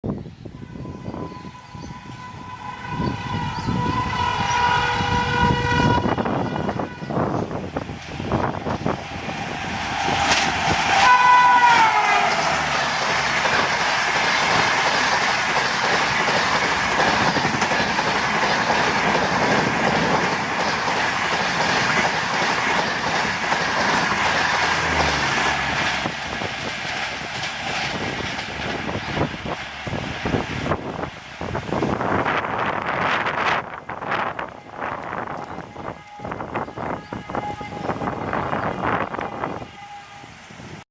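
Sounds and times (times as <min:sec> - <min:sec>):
train coaches roaring past: 0:00.1 - 0:40.8
train horn: 0:00.5 - 0:07.7, 0:09.3 - 0:13.0, 0:24.2 - 0:25.9, 0:32.3 - 0:40.8
wheels clacking over rail joints: 0:07.9 - 0:32.2.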